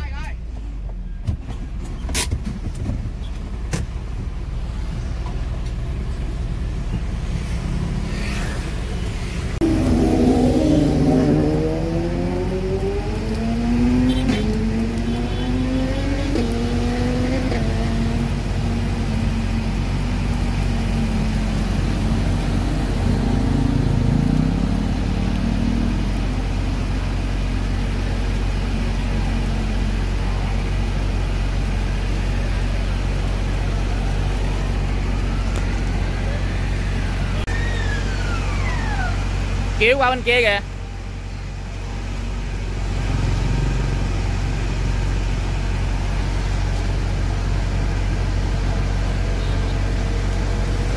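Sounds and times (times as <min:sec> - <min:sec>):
fire engine motor pulling away: 0:03.4 - 0:39.8.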